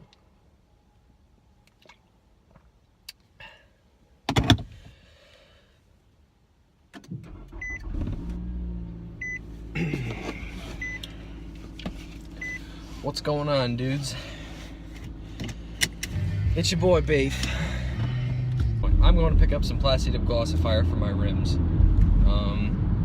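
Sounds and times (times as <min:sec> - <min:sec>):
car engine starting and idling: 0:06.8 - 0:23.0.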